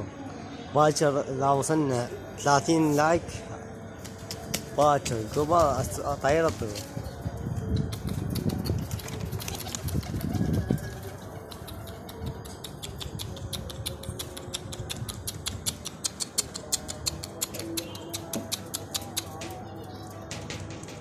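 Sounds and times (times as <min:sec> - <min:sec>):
pigeons cooing: 0:07.9 - 0:20.5
rapid even clicking: 0:11.5 - 0:19.6.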